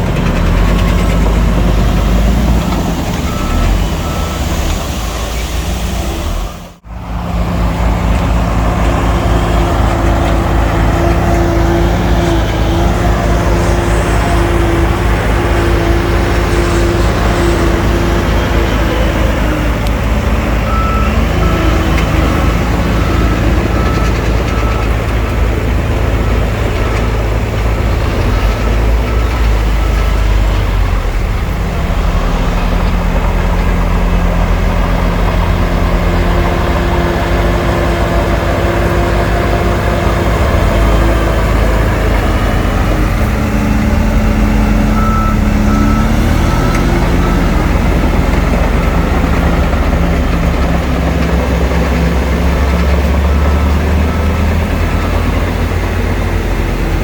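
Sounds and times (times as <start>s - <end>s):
heavy diesel engines running: 0.0s - 57.0s
reversing alarm beeping: 1.1s - 6.8s, 9.0s - 26.7s, 34.8s - 56.4s.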